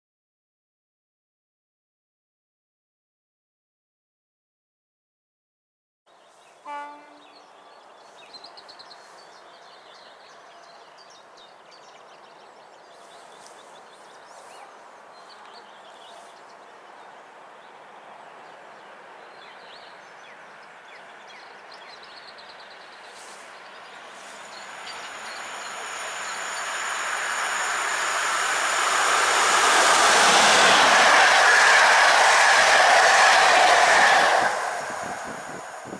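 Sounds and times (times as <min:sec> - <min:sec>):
approaching train rumble: 0:06.5 - 0:35.9
high steady ringing: 0:24.3 - 0:30.4.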